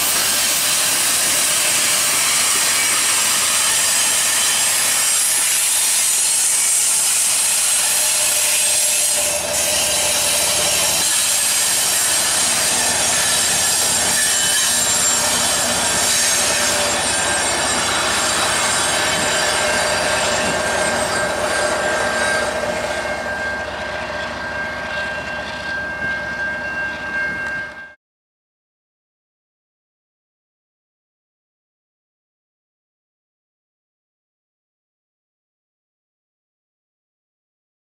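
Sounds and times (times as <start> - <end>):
freight train wheel and rail noise: 0.0 - 28.0
wheels squealing: 0.1 - 27.8.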